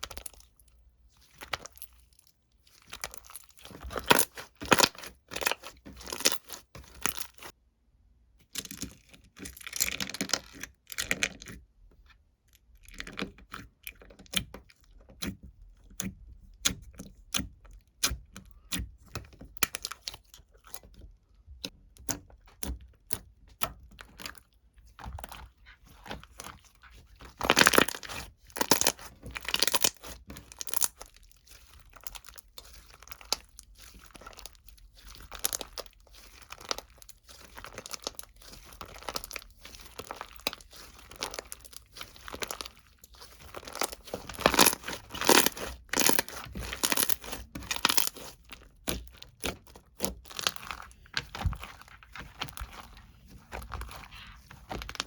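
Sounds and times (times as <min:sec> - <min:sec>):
crinkling and crackling: 0:00.0 - 0:07.6, 0:19.1 - 0:55.0.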